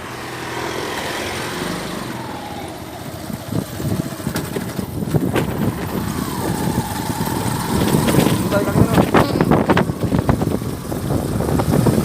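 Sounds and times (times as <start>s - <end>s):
vehicle engine rumble: 0.0s - 12.0s
knocks and rattles: 3.4s - 10.7s.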